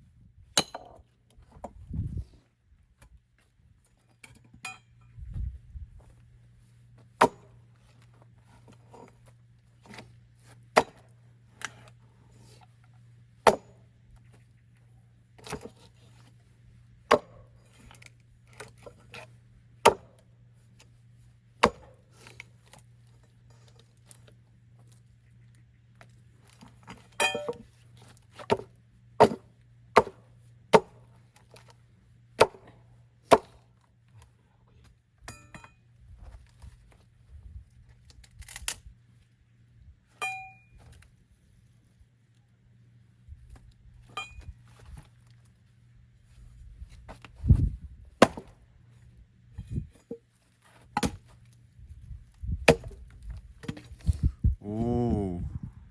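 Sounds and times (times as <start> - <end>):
axe splitting firewood: 0.6 - 1.0, 7.2 - 9.2, 9.8 - 12.0, 13.4 - 13.9, 15.4 - 16.3, 17.0 - 20.9, 21.6 - 22.9, 26.4 - 31.7, 32.4 - 33.7, 47.0 - 48.6, 49.5 - 51.6, 52.4 - 54.2.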